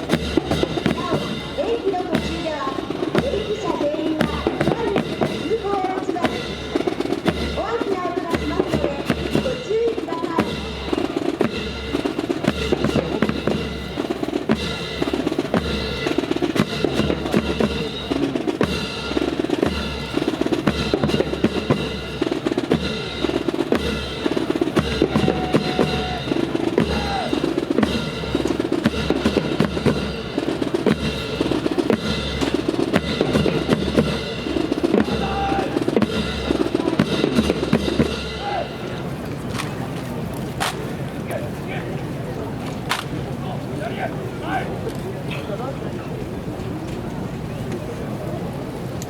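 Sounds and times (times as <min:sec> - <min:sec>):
snare and bass drums cadence: 0:00.0 - 0:43.9.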